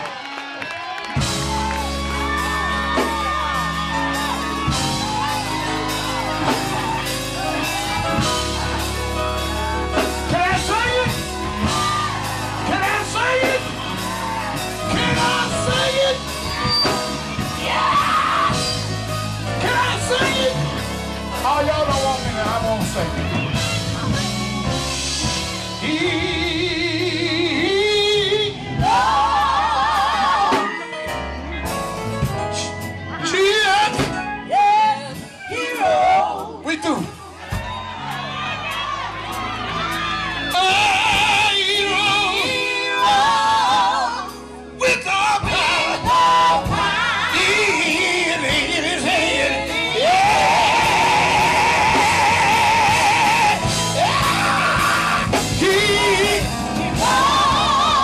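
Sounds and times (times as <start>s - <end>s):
drum beat: 1.1s - 25.6s, 49.9s - 58.0s
bass line: 1.1s - 58.0s
gospel group singing: 1.2s - 31.1s, 32.6s - 36.6s, 37.5s - 58.0s.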